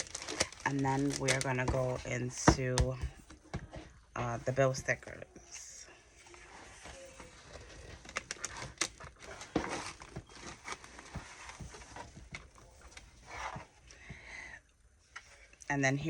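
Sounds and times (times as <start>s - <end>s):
sticker packaging crinkling: 0.0s - 2.3s, 6.5s - 13.4s.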